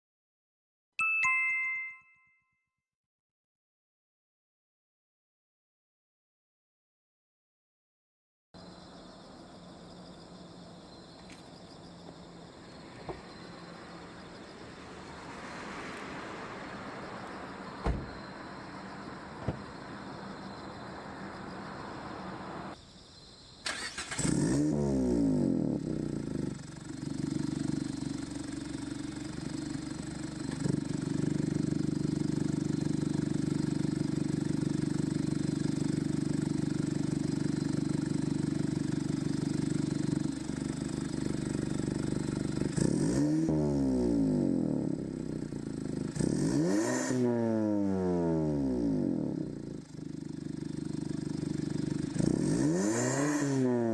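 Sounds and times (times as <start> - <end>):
car engine idling: 8.6 - 22.8, 25.8 - 42.8, 49.4 - 52.4
engine revving: 13.4 - 22.8, 23.7 - 53.9.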